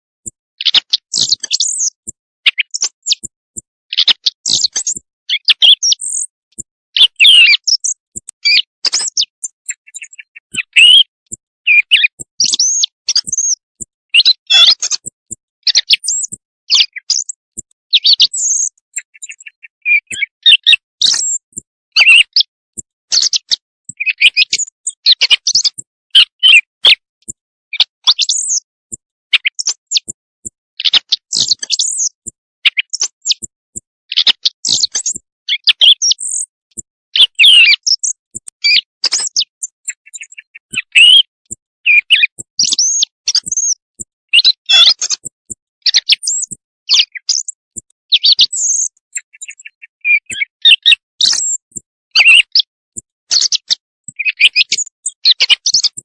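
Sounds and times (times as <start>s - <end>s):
recorded quail calls: 7.0s - 11.1s, 40.0s - 41.3s.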